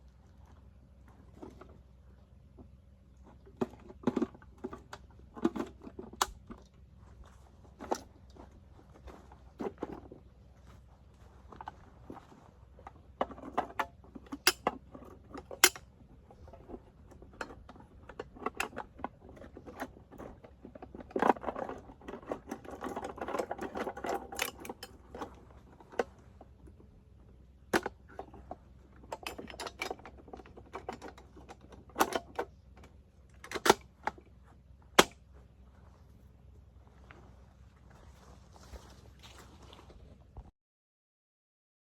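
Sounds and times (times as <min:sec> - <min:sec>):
metal gun parts clicking and clacking: 0:13.5 - 0:15.8.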